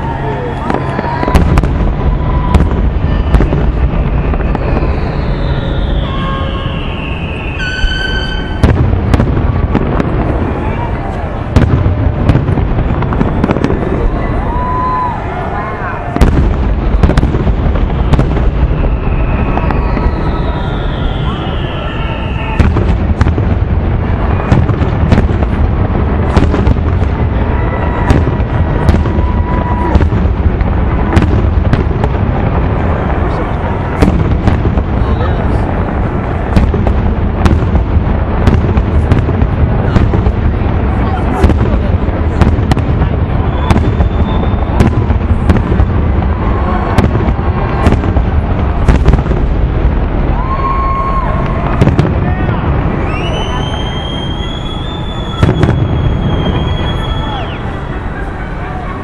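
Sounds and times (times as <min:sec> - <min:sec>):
fireworks bangs and cracks: 0:00.0 - 0:59.0
whistling tones: 0:02.1 - 0:08.6, 0:18.0 - 0:22.8, 0:43.4 - 0:45.0, 0:52.9 - 0:58.0.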